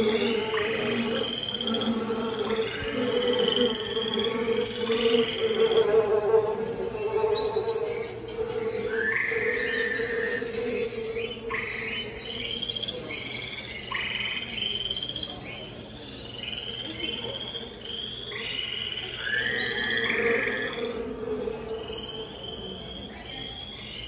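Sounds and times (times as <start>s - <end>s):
low croaking: 0.0s - 12.0s
frogs and insects trilling: 0.0s - 24.0s.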